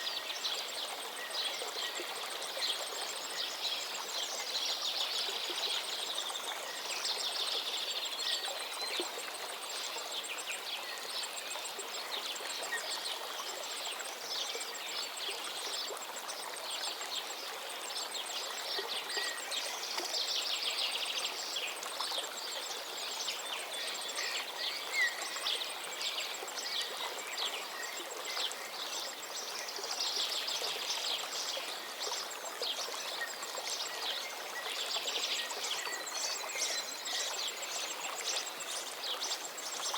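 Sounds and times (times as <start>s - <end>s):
river flowing: 0.0s - 39.9s
songbirds singing and chirping: 12.1s - 39.9s.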